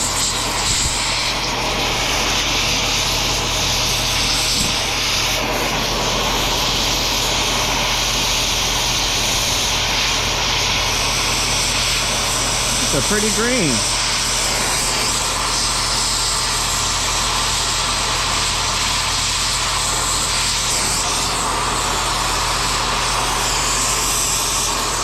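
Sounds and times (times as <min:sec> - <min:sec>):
cutting torch flame hissing: 0:00.0 - 0:25.0.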